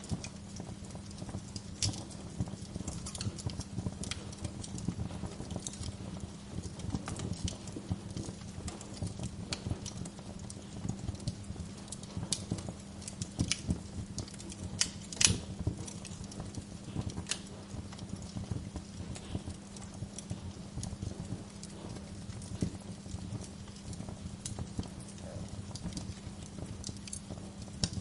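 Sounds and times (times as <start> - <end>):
steady low hum: 0.0 - 28.0
wood fire crackling: 0.0 - 28.0.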